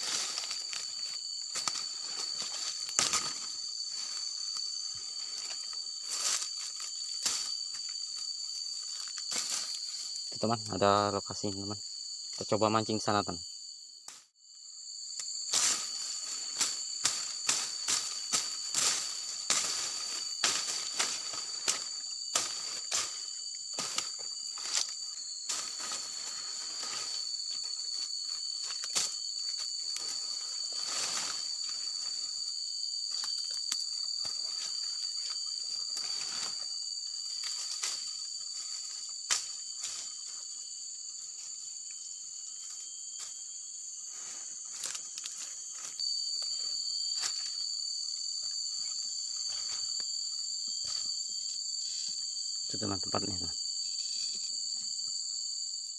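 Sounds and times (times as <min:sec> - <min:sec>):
footsteps through dry vegetation: 0:00.0 - 0:10.2, 0:15.3 - 0:40.2
insect chorus: 0:00.0 - 0:55.9.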